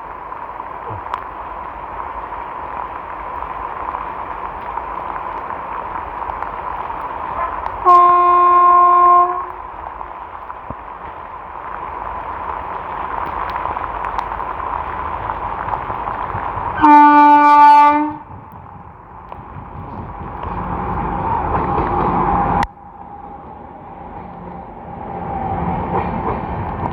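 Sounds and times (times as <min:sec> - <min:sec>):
heavy rain hissing: 0:00.0 - 0:23.0
locomotive horn blasts: 0:07.8 - 0:09.6, 0:16.8 - 0:18.3.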